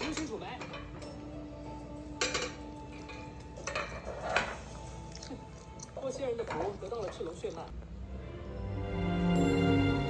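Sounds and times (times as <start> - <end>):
dishes and cutlery clinking: 0.0 - 7.7.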